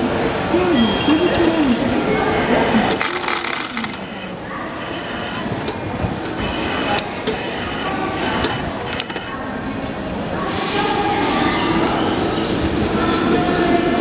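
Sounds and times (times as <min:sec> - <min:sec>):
crowd hubbub: 0:00.0 - 0:14.0
ticket machine clicking: 0:02.8 - 0:04.4, 0:05.5 - 0:07.6, 0:08.3 - 0:09.3.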